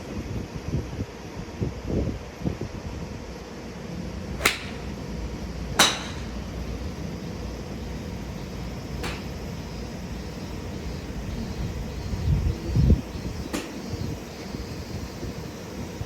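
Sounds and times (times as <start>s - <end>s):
steady low hum: 0.0s - 16.0s
golf clubs striking balls: 4.3s - 8.2s, 8.8s - 11.8s, 13.2s - 14.3s.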